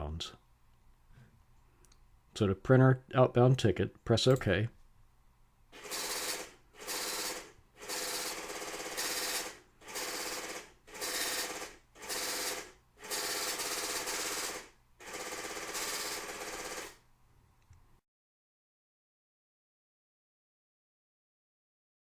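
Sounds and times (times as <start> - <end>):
ticket printer buzzing: 5.8 - 17.0.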